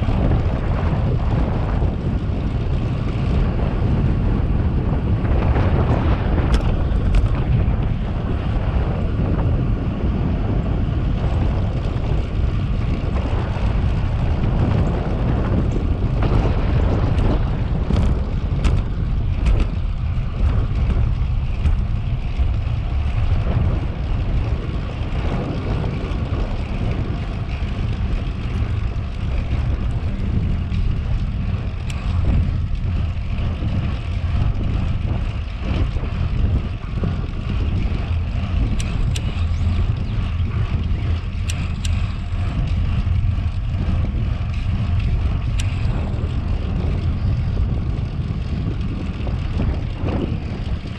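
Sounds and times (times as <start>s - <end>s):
wind rushing over microphone: 0.0s - 50.9s.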